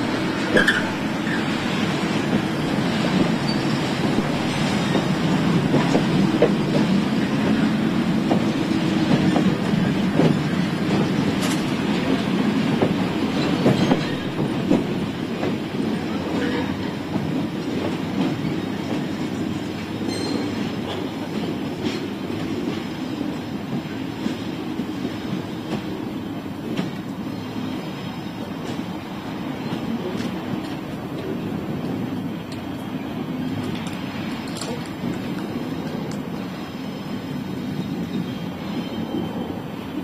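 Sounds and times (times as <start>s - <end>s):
rail wagons rumbling on track: 0.0s - 40.0s
wheels clicking over rail joints: 33.6s - 36.3s.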